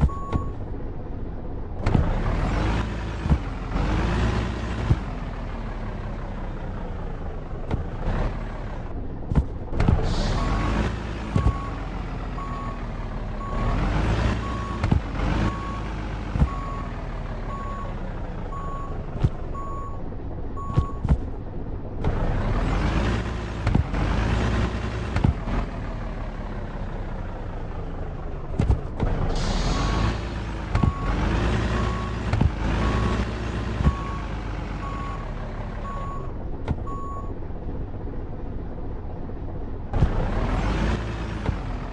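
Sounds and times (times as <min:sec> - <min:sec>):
truck engine revving: 0:01.5 - 0:41.9.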